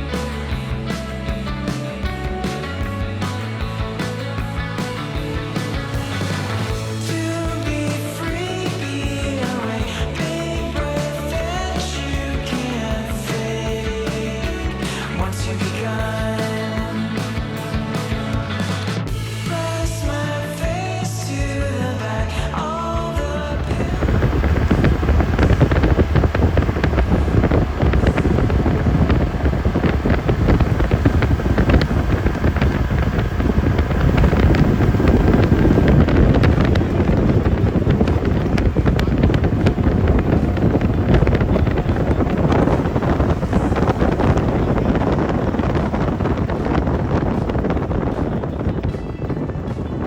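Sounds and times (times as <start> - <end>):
wind buffeting microphone: 23.4 - 50.0.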